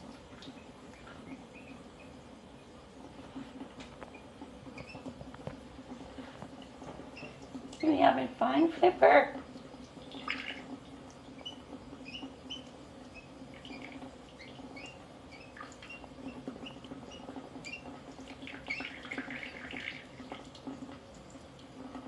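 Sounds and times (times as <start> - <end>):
bird chirping and squeaking: 1.0 - 2.2, 4.8 - 5.1, 7.1 - 8.0, 11.4 - 17.9, 18.5 - 19.2.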